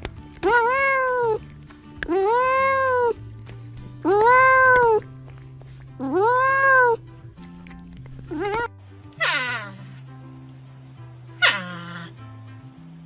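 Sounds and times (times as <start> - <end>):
background music: 0.0 - 13.0
cat meowing: 0.4 - 3.2, 4.0 - 5.1, 6.0 - 7.0, 8.3 - 9.8, 11.4 - 12.1.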